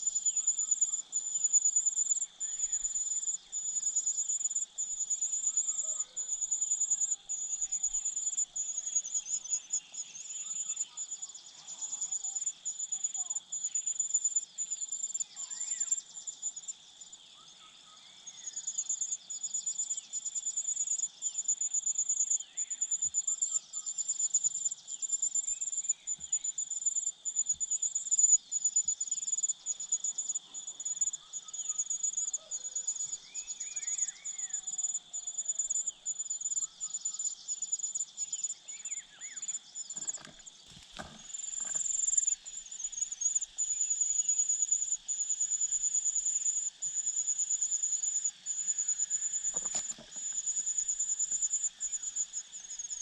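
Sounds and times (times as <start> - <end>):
low insect drone: 0.0 - 53.0
knocks or rustles: 39.9 - 41.9, 49.5 - 50.4.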